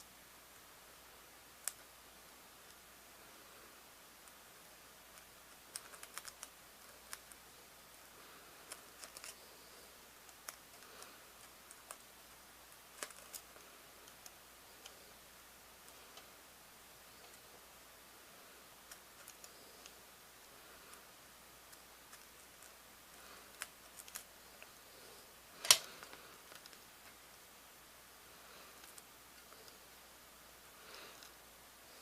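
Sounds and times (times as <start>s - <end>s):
low hiss: 0.0s - 32.0s.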